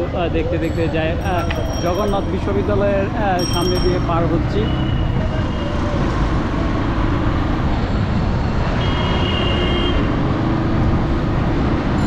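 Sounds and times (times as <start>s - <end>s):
brief high tone: 1.2s - 2.7s.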